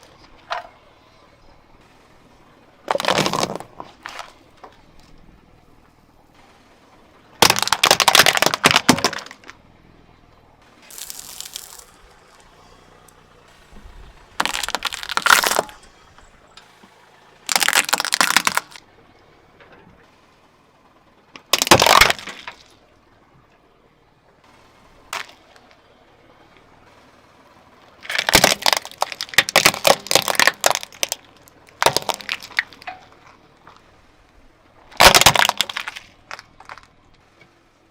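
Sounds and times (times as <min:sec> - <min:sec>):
objects crunching under car tyre: 0:02.8 - 0:05.3, 0:07.3 - 0:09.6, 0:10.6 - 0:18.8, 0:21.4 - 0:22.8, 0:25.0 - 0:25.8, 0:28.0 - 0:37.2.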